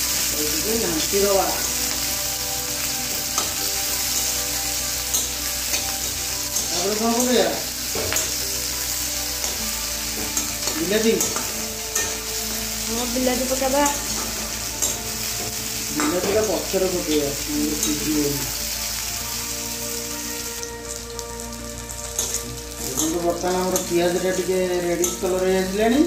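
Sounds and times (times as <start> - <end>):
onions sizzling in hot oil: 0.0 - 26.0
metal spatula scraping pan: 9.4 - 12.6, 13.4 - 18.2.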